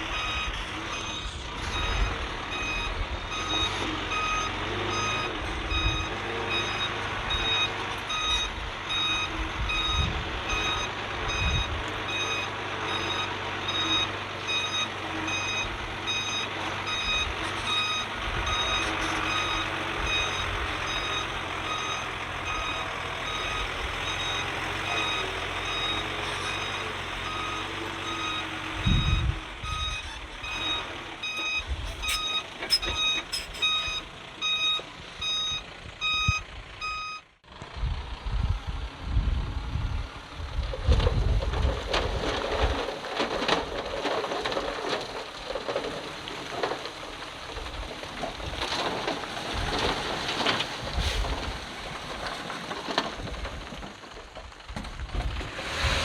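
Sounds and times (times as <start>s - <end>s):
reversing alarm beeping: 0.1s - 37.3s.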